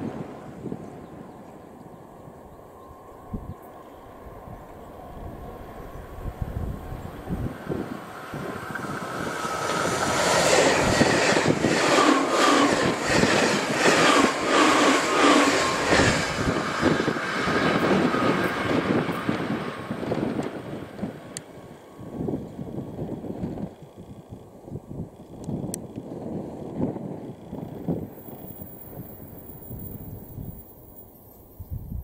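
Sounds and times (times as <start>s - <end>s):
train wheels clattering over rails: 8.4s - 20.6s.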